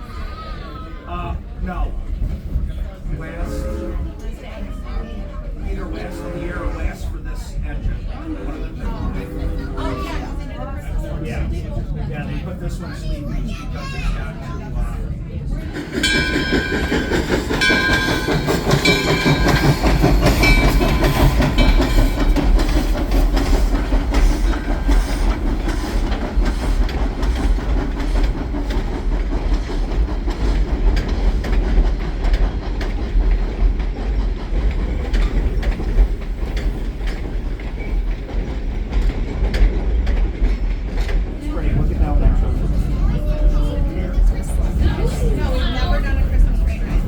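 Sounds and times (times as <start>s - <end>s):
train rumbling on track: 0.0s - 47.0s
wheels clicking over rail joints: 15.6s - 43.4s.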